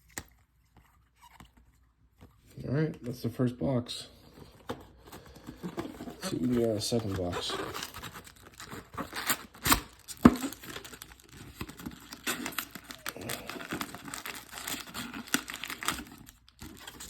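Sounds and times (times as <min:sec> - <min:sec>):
plastic wrapping crinkling and tearing: 0:04.4 - 0:17.0.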